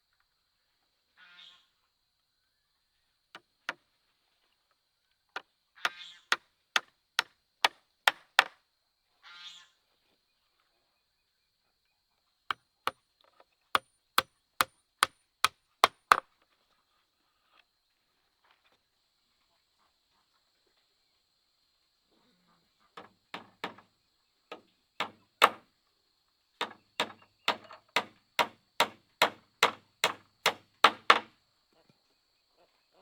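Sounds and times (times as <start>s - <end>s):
tool striking wood: 6.8s - 8.5s, 15.8s - 16.2s, 23.0s - 23.8s, 24.5s - 25.6s, 26.6s - 31.3s.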